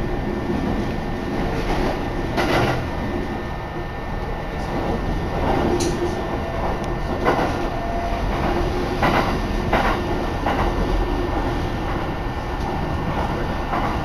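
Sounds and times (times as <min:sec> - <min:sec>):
train rumble inside carriage: 0:00.0 - 0:14.0
wheels clacking on track: 0:07.0 - 0:11.0.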